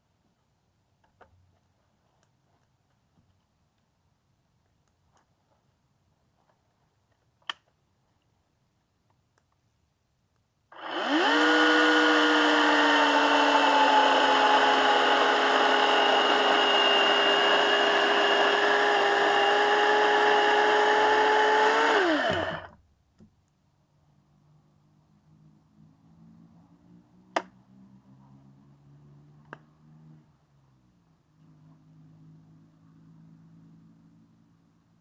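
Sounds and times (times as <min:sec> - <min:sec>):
chainsaw cutting wood: 0:10.8 - 0:22.7.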